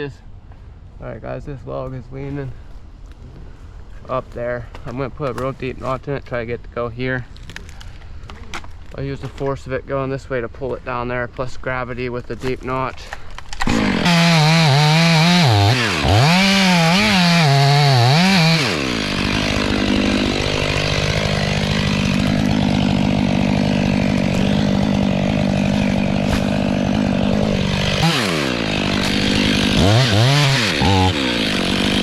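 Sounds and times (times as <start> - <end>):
chainsaw revving and cutting: 13.6 - 32.0.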